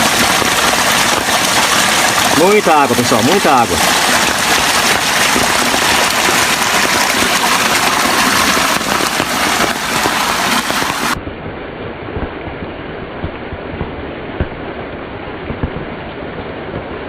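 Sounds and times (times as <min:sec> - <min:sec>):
rushing floodwater: 0:00.0 - 0:11.2
heavy rain: 0:00.0 - 0:17.0.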